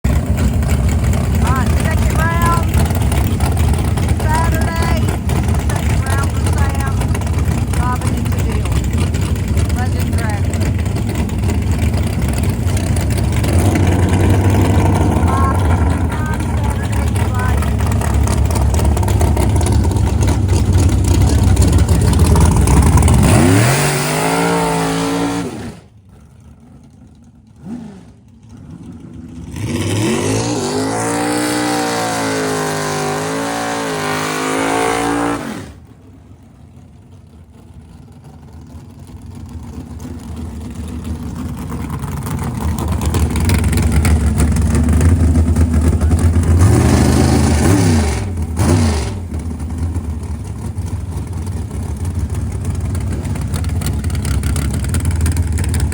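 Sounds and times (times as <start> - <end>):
car engine revving hard: 0.1 - 25.9, 27.6 - 35.8, 42.8 - 49.4.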